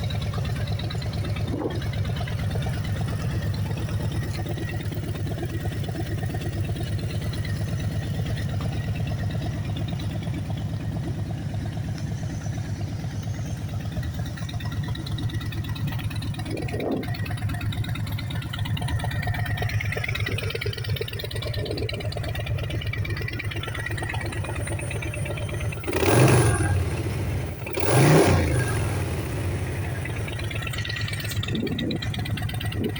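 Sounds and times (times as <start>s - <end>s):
motorcycle engine idling: 0.0s - 32.9s
motorcycle engine revving: 0.0s - 32.9s.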